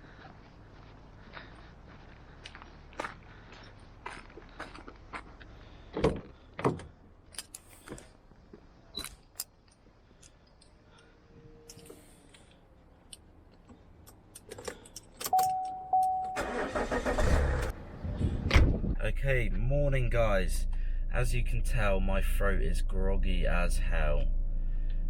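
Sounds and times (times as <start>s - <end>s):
car engine starting and running: 14.1s - 25.0s.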